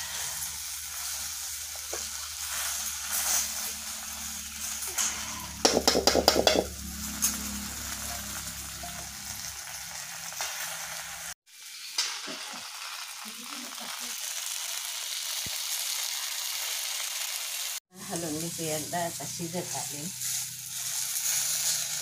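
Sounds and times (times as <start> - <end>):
okra sizzling in oil: 0.0 - 22.0
metal spatula scraping pan: 4.6 - 9.4.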